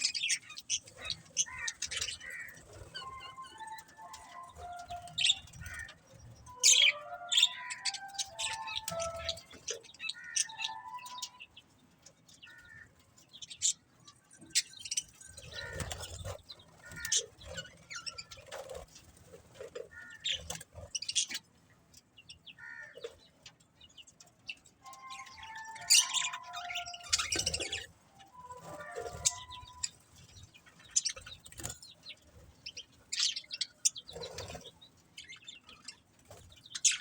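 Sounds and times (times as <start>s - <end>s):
budgerigars chirping: 0.0s - 11.4s, 14.6s - 18.8s, 24.9s - 31.7s.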